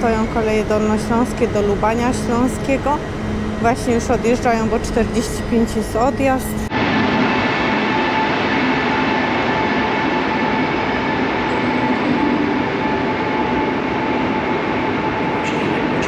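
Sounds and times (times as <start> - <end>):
faint whining tones: 0.0 - 6.7
train running noise: 0.0 - 16.0.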